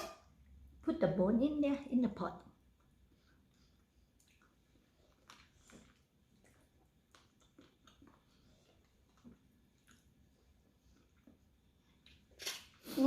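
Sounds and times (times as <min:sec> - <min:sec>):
people chewing: 0:02.8 - 0:13.0.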